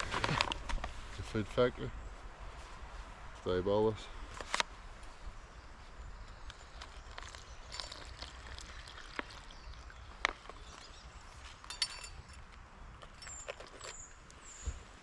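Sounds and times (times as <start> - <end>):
water pouring into pouch: 6.9 - 10.8.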